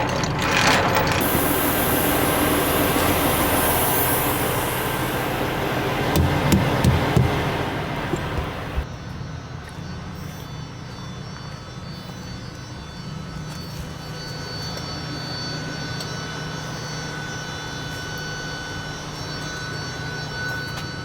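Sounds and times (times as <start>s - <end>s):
diesel engine drone: 0.0s - 8.9s
faint high whine: 1.2s - 21.0s.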